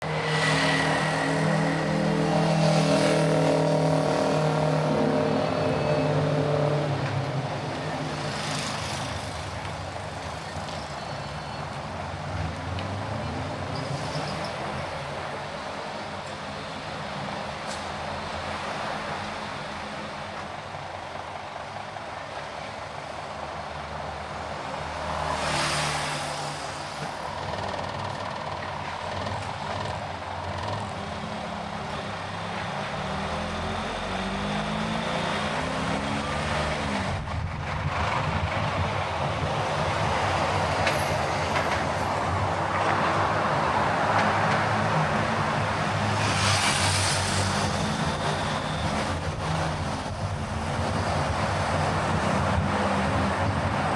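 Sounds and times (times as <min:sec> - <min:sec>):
hissing swells: 0:00.0 - 0:05.6
car engine and road rumble: 0:24.4 - 0:53.9.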